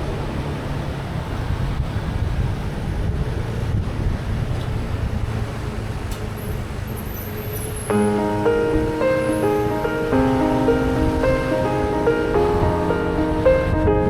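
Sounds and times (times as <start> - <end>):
wind noise on microphone: 0.0 - 6.8, 7.9 - 14.0
piano-like background music: 7.8 - 14.0.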